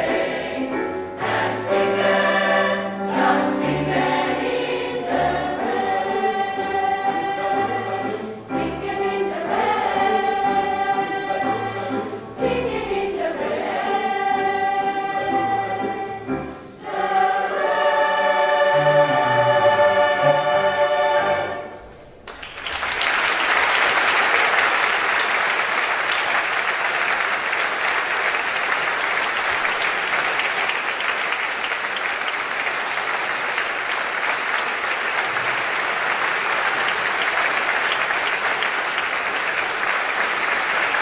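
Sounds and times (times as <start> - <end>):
choir singing final chord: 0.0 - 22.0
audience applauding: 22.2 - 41.0.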